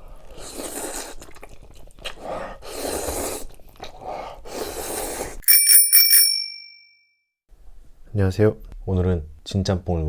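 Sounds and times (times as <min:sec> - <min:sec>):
chewing and crunching: 0:00.0 - 0:04.1.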